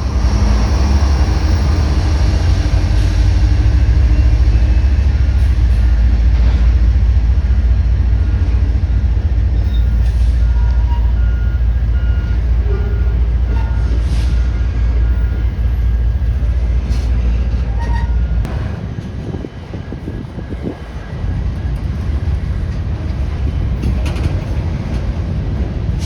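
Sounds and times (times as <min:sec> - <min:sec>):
diesel locomotives rumbling: 0:00.0 - 0:26.0.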